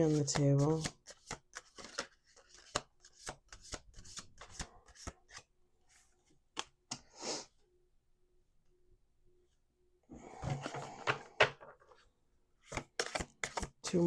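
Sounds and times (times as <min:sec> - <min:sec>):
cards shuffled by hand: 0:00.0 - 0:05.5, 0:12.6 - 0:13.8.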